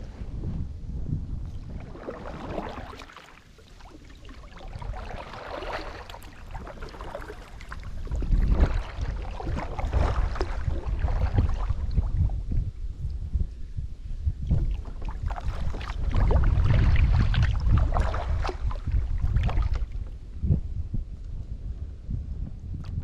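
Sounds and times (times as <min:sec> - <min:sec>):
low rumble: 0:00.0 - 0:03.0, 0:07.8 - 0:23.0
water lapping around hull: 0:01.3 - 0:13.2, 0:13.8 - 0:20.6
paddle strokes splashing: 0:01.5 - 0:12.1, 0:14.5 - 0:20.0.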